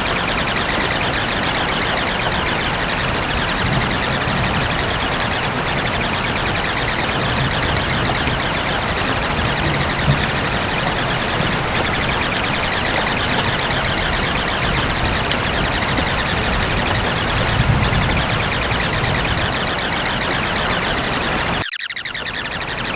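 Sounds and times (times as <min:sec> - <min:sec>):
rain hissing: 0:00.0 - 0:21.6
faint drop ticks: 0:00.0 - 0:22.8.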